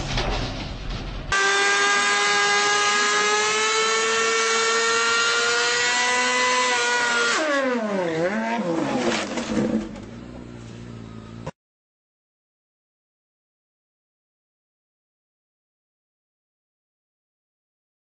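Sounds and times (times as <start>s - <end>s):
motorcycle engine at high revs: 1.4s - 11.6s.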